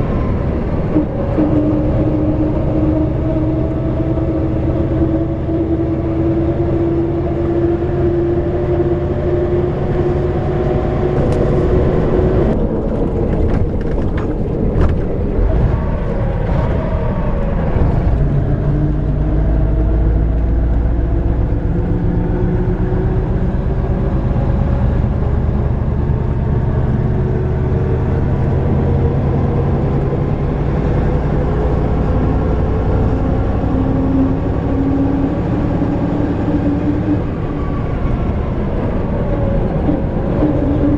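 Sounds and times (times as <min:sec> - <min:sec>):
diesel coach engine running: 0:00.0 - 0:40.9
road rumble: 0:00.0 - 0:40.9
knocks and rattles: 0:11.2 - 0:15.3.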